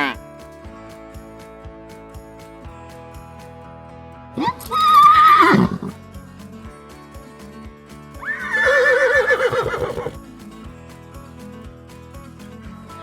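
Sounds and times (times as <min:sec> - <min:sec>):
soft background music: 0:00.0 - 0:13.0
horse whinnying: 0:04.4 - 0:06.0, 0:08.2 - 0:10.2.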